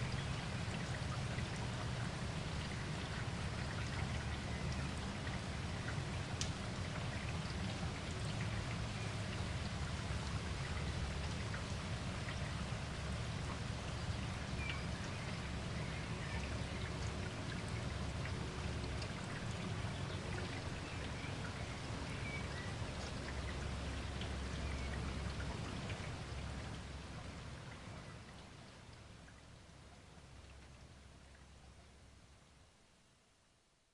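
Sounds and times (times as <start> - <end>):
raindrops striking sharply: 0.0 - 27.1
steady rain falling: 0.0 - 33.9.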